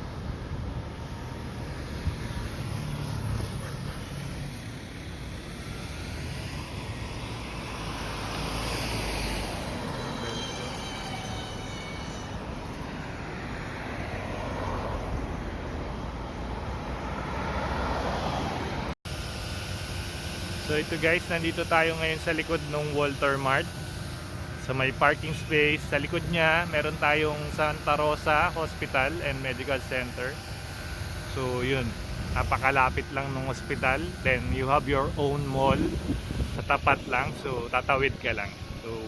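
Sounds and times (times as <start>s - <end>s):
falling whine: 0.0s - 17.1s, 19.1s - 39.0s
road traffic rumble: 0.0s - 39.0s.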